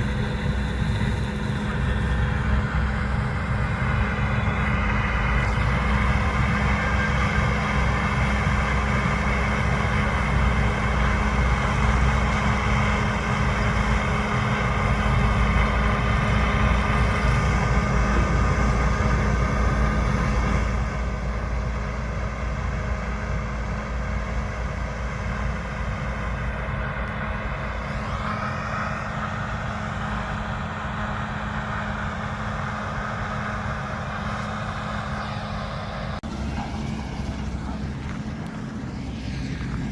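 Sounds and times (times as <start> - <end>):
constant machine whine: 0.0 - 39.9
diesel engine drone: 0.0 - 39.9.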